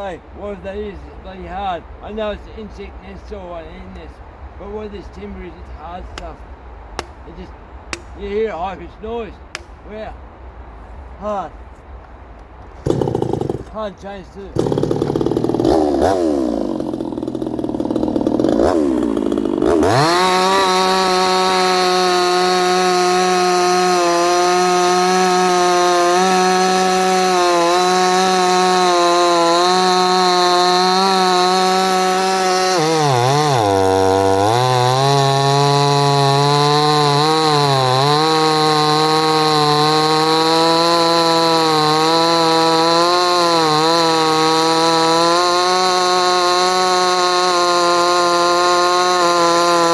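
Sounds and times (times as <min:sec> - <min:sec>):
chainsaw cutting timber: 0:06.2 - 0:06.4, 0:07.0 - 0:08.2, 0:09.5 - 0:09.9, 0:12.6 - 0:49.9.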